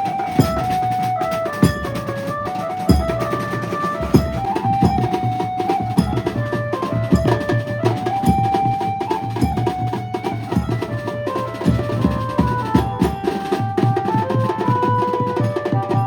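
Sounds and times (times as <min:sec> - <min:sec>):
fast dense drumming: 0:00.0 - 0:15.9
heavy bass drum: 0:01.6 - 0:02.2, 0:02.9 - 0:05.3.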